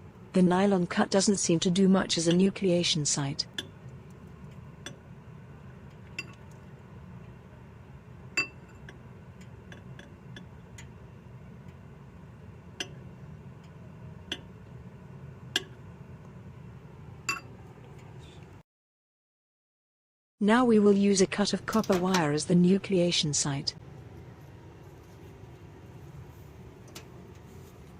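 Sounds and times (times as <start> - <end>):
steady low hum: 0.0 - 18.6, 20.5 - 27.9.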